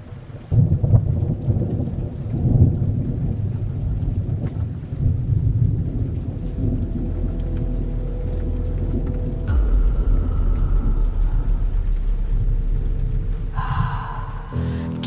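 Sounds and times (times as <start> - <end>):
rain: 0.0 - 15.0
thunder rumbling: 0.5 - 15.0.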